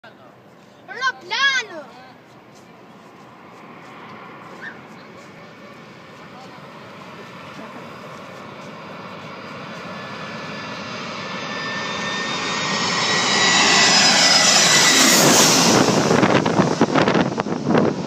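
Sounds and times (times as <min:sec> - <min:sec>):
jet airliner passing overhead: 0:00.3 - 0:18.0.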